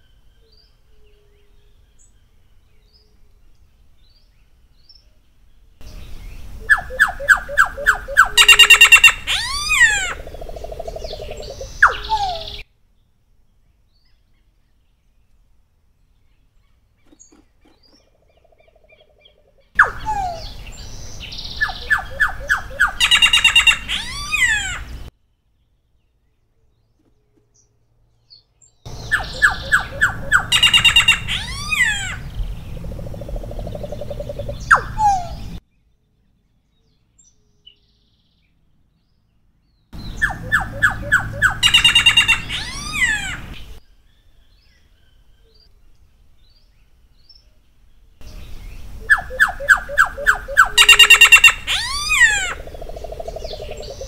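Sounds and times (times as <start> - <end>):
bird singing: 0.0 - 54.0.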